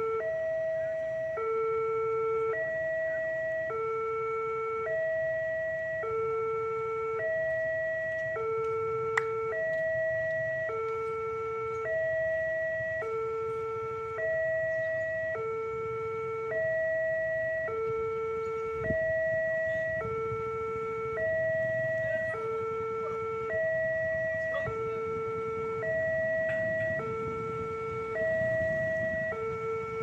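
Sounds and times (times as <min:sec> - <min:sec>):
level crossing two-tone alarm: 0:00.0 - 0:30.0.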